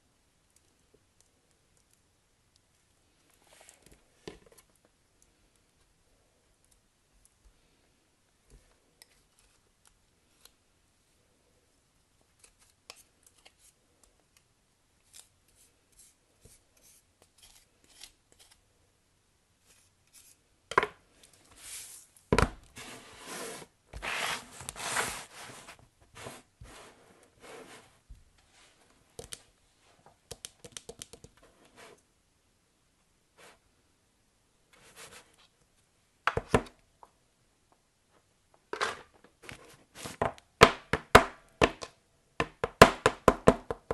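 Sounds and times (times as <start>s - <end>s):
small clicks and taps: 29.2s - 29.5s, 30.3s - 31.4s.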